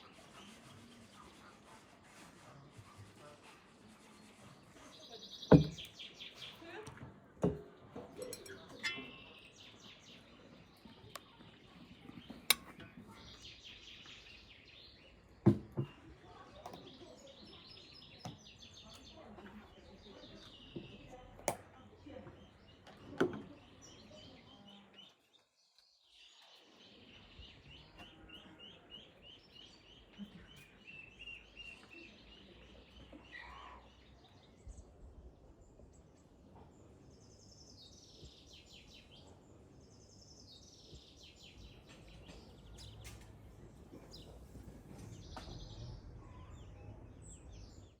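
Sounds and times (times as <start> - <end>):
bird chirps: 8.2 - 16.0.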